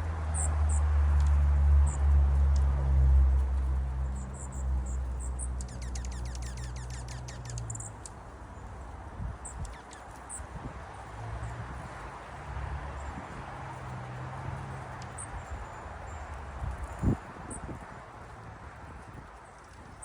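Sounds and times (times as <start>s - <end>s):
songbird trill: 0.2s - 2.2s, 3.6s - 8.8s, 9.4s - 10.5s
high bird chips: 5.4s - 8.1s.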